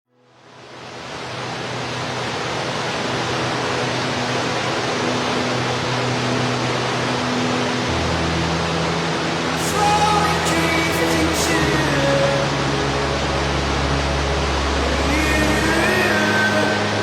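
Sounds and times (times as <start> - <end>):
waterfall rushing: 0.4 - 17.0.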